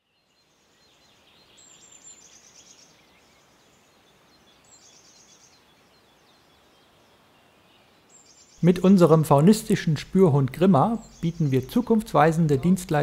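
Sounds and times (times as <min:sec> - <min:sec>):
birds chirping: 0:00.0 - 0:13.0
light background hiss: 0:00.0 - 0:13.0
songbird trilling: 0:09.3 - 0:13.0.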